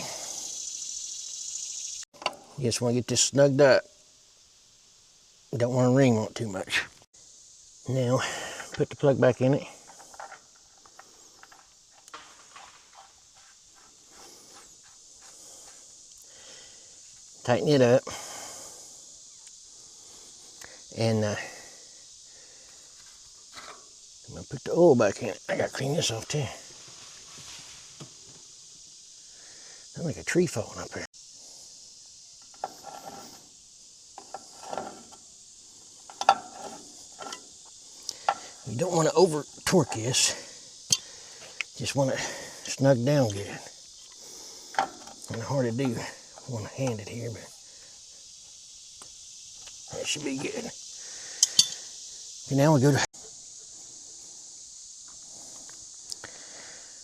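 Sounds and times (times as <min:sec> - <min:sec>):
high insect hum: 0:00.0 - 0:57.0
wrench clicking and scraping metal: 0:36.1 - 0:37.6, 0:51.4 - 0:51.8.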